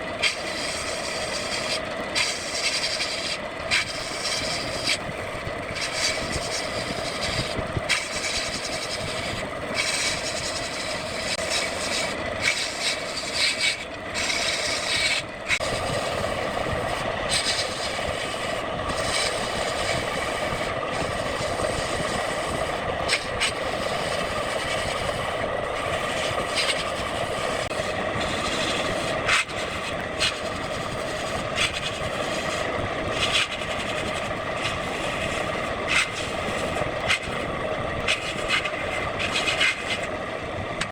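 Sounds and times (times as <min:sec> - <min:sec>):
tool scraping spinning wood: 0:00.0 - 0:40.9
wood lathe running: 0:00.0 - 0:40.9.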